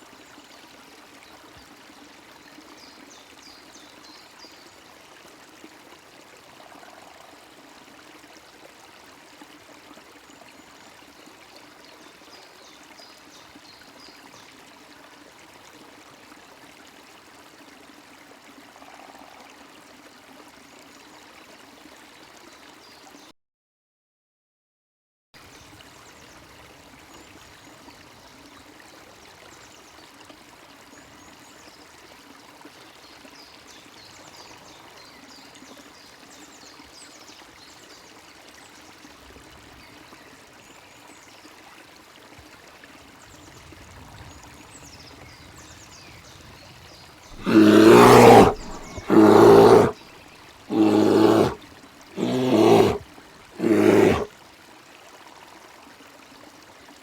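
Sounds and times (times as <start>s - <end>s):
faint running stream: 0.0s - 23.3s, 25.4s - 57.0s
loud pitched animal calls: 47.4s - 50.0s, 50.7s - 51.6s, 52.2s - 53.0s, 53.6s - 54.3s.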